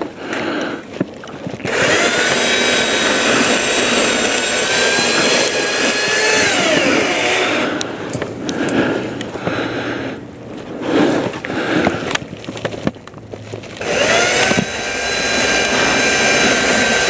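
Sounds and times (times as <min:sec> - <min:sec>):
power saw cutting limbs: 0:01.6 - 0:09.0, 0:11.6 - 0:17.0.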